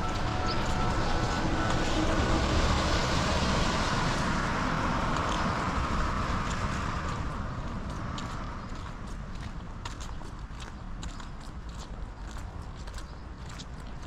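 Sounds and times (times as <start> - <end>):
car passing on wet road: 0.0 - 10.0
rain falling: 0.1 - 8.9.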